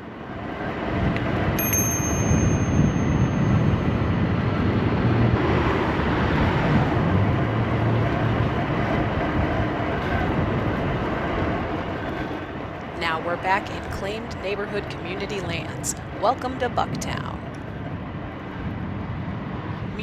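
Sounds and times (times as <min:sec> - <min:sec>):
road rumble: 0:00.0 - 0:20.0
thin high tone: 0:01.6 - 0:04.2.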